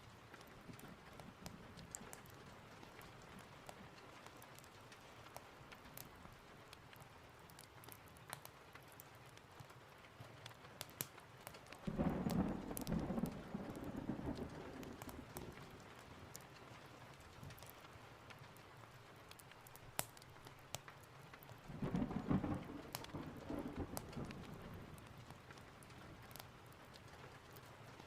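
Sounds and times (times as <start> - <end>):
steady rain: 0.0 - 28.0
sharp clicks and crackles: 0.2 - 28.0
thunder rolling: 11.9 - 15.9, 21.7 - 25.0.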